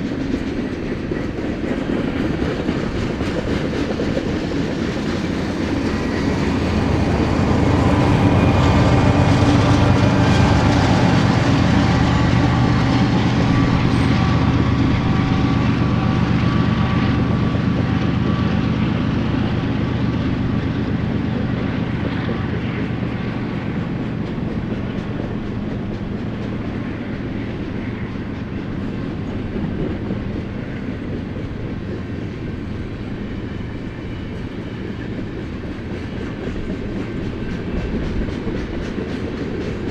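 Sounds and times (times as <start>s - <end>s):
freight train wheels on rails: 0.0s - 39.9s.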